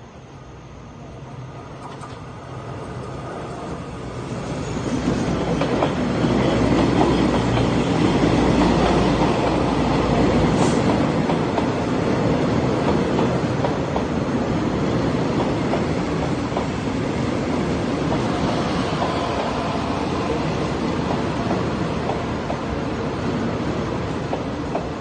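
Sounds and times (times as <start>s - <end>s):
train wheels clacking on rails: 4.9s - 25.0s.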